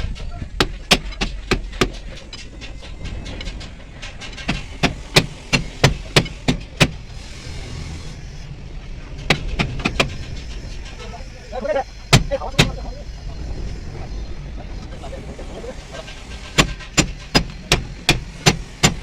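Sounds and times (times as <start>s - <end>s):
air hiss: 4.4s - 8.9s, 9.6s - 19.0s.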